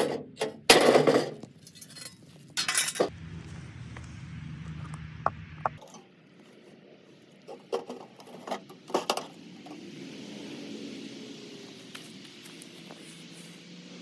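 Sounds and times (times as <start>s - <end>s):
metal parts clinking: 0.4s - 3.1s
low rumble: 3.0s - 5.8s.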